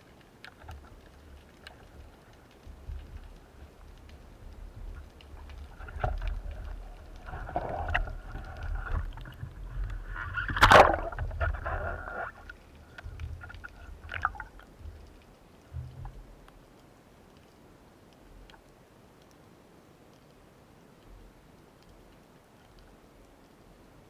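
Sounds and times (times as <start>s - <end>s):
small underwater clicks: 0.0s - 24.0s
underwater rumble of moving water: 0.4s - 16.6s.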